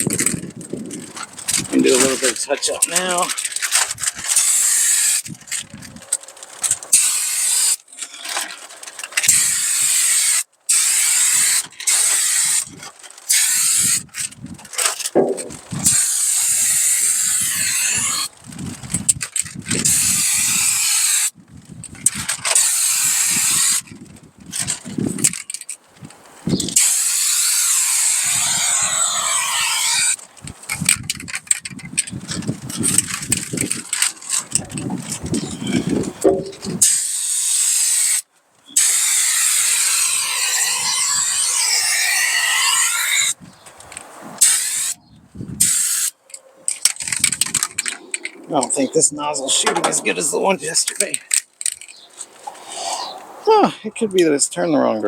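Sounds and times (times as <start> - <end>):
wind rumbling on microphone: 0.0 - 2.8, 5.2 - 6.1, 13.8 - 22.5, 23.1 - 26.8, 30.3 - 36.9, 43.3 - 45.8, 46.9 - 51.1.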